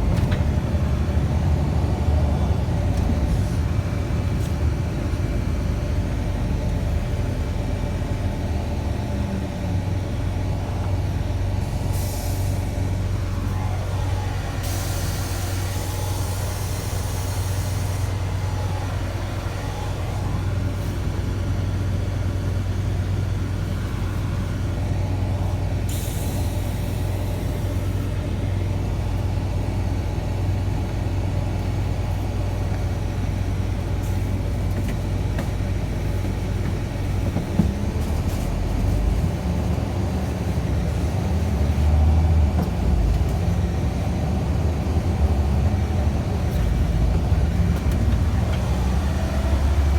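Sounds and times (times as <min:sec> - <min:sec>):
bus engine humming: 0:00.0 - 0:49.9
compressed air hissing: 0:14.6 - 0:18.2.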